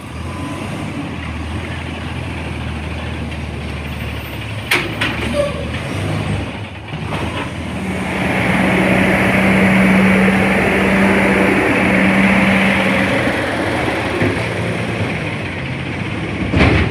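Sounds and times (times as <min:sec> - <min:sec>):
garbage truck engine running: 0:00.0 - 0:16.9.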